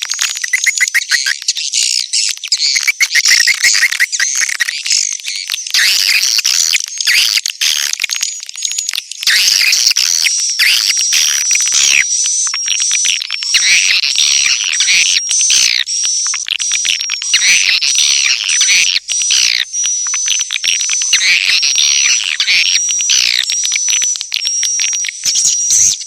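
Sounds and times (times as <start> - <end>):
swiftlets twittering: 0.0 - 1.6, 2.4 - 4.8, 9.2 - 26.0.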